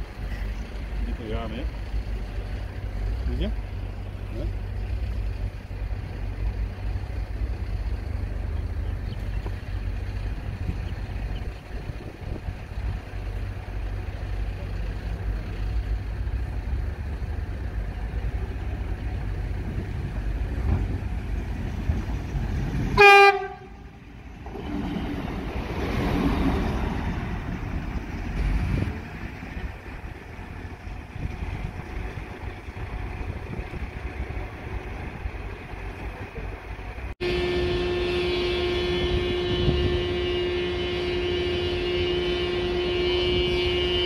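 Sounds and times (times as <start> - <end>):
railcar rumbling past: 0.0 - 44.0
railcar horn blast: 22.9 - 24.0, 37.2 - 44.0.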